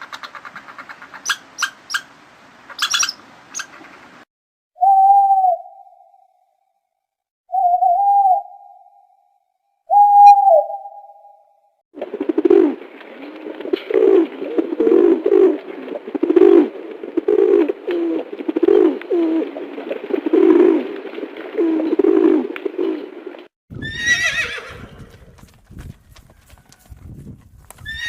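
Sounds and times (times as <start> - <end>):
pigeon cooing: 13.7 - 20.9, 21.5 - 23.2
horse whinnying: 23.8 - 25.4.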